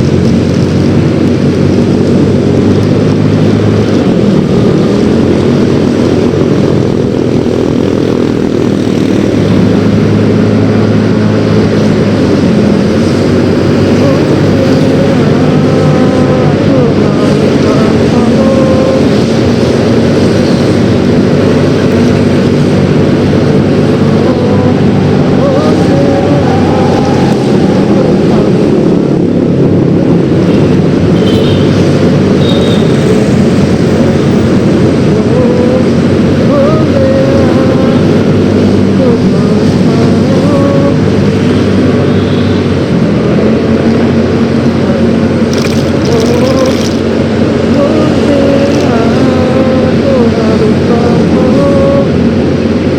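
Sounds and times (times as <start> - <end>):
scooter engine running: 0.0 - 30.2, 44.0 - 52.9
wind and road noise: 0.0 - 52.9.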